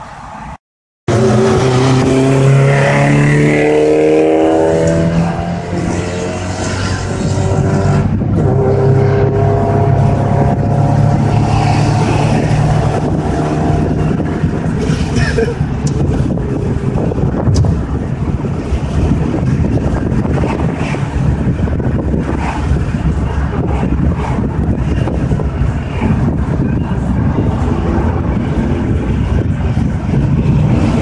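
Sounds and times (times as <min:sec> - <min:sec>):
car engine revving: 0:01.1 - 0:31.0.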